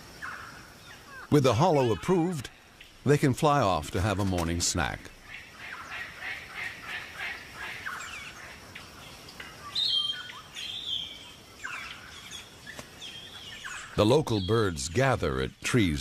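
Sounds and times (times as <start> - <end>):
birds chirping: 0.0 - 16.0
loud whistled bird call: 9.7 - 12.0.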